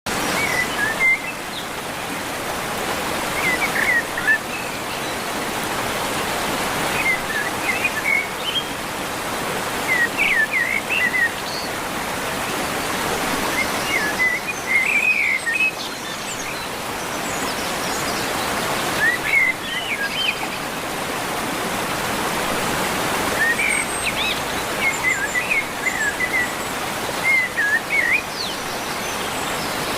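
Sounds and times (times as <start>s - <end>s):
river water flowing: 0.1s - 29.9s.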